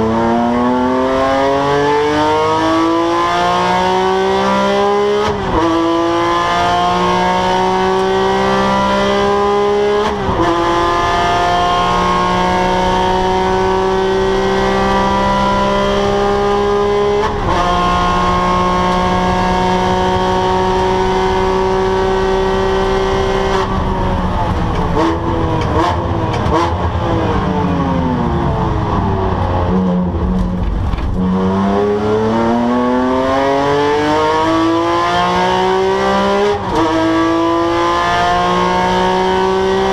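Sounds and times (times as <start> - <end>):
sports car engine revving: 0.0 - 39.9.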